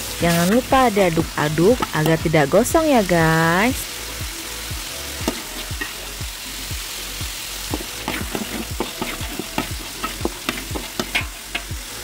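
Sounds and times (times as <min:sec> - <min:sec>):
spice paste sizzling in oil: 0:00.0 - 0:12.0
metal spatula scraping pan: 0:07.7 - 0:11.7.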